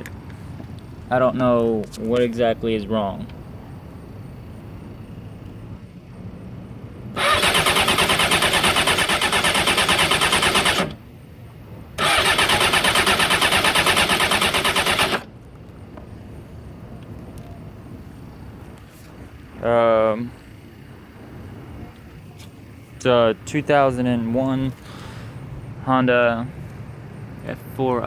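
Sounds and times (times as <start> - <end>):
motorcycle electric starter cranking: 7.2 - 11.0, 12.0 - 15.3.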